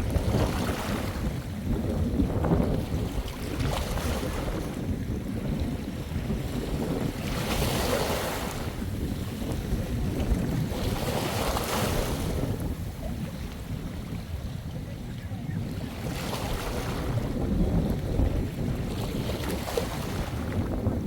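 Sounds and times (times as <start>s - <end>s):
wind rumbling on microphone: 0.0s - 21.0s
sea waves washing onto shore: 6.2s - 21.0s.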